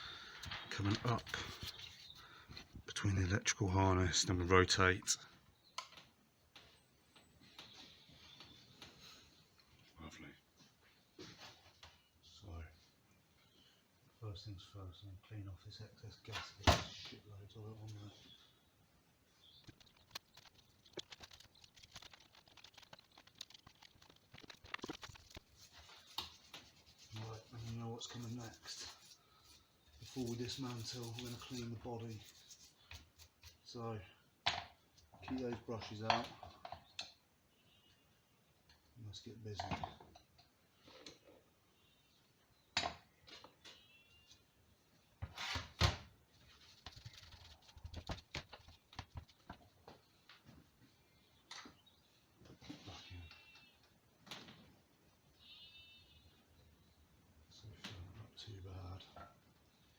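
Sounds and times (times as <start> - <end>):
gasket scraping clicks and scratches: 19.5 - 29.2.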